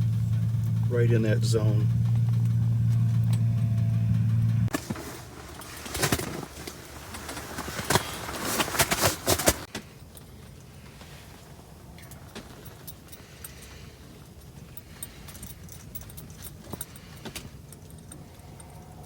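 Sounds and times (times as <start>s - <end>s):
low mechanical hum: 0.0s - 8.6s
clicks and light rattles: 1.5s - 19.0s.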